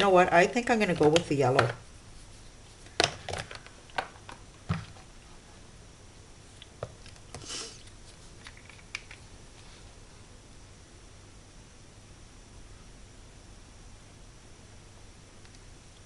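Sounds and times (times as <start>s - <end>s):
soft rustle: 1.9s - 3.0s.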